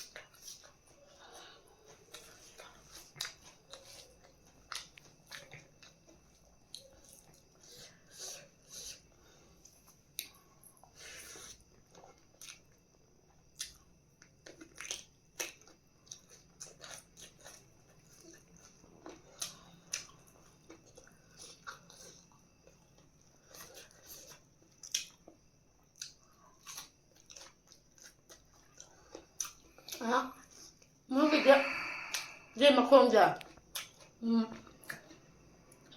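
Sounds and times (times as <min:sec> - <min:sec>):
person chewing and biting: 0:00.0 - 0:30.9, 0:33.5 - 0:35.9
food crunches: 0:01.9 - 0:07.4, 0:10.2 - 0:30.0, 0:33.4 - 0:35.9
wet mouth clicks: 0:31.9 - 0:32.4.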